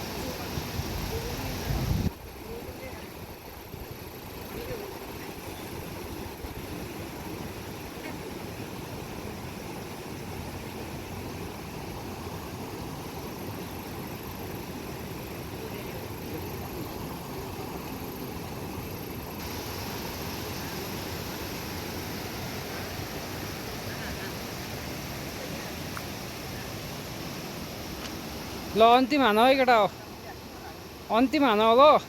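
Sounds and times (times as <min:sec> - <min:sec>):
river rushing roar: 0:00.0 - 0:32.0.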